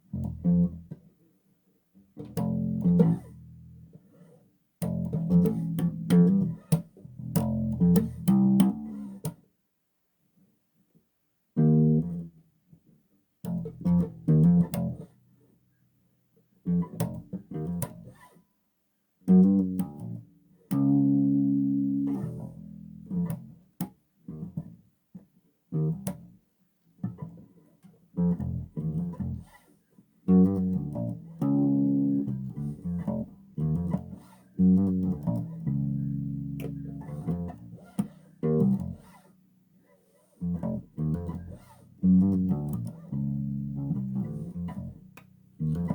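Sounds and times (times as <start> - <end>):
bass guitar plucked notes: 0.0 - 1.0, 2.2 - 3.8, 4.8 - 9.1, 11.6 - 12.3, 13.4 - 15.1, 16.7 - 18.2, 19.3 - 23.6, 25.8 - 26.3, 28.2 - 29.5, 30.3 - 39.1, 40.4 - 45.9.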